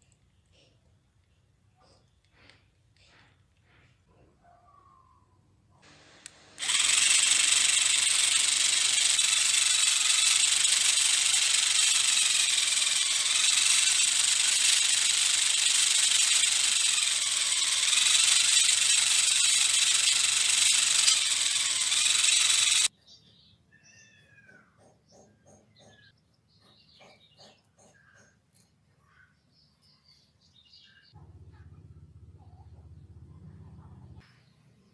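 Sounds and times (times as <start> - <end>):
small motor whirring: 5.8 - 22.9.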